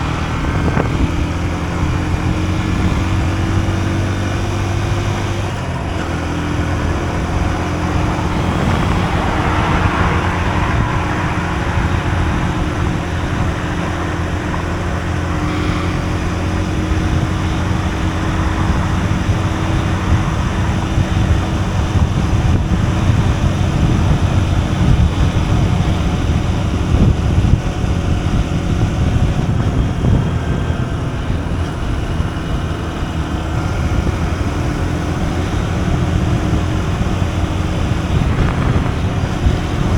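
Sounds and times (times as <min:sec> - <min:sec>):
rushing noise: 0:00.0 - 0:25.3, 0:35.7 - 0:39.9
motorcycle engine running: 0:00.0 - 0:39.9.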